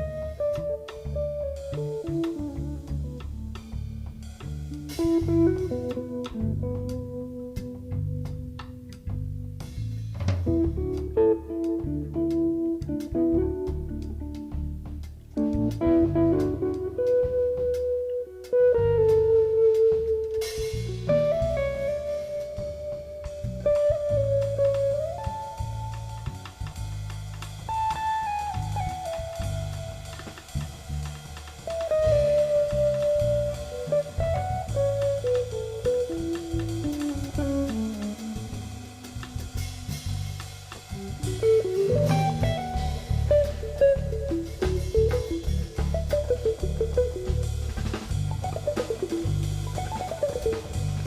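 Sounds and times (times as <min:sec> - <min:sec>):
drum kit: 0:00.0 - 0:51.0
guitar: 0:00.0 - 0:51.0
jazz trio playing slow tune: 0:00.0 - 0:51.0.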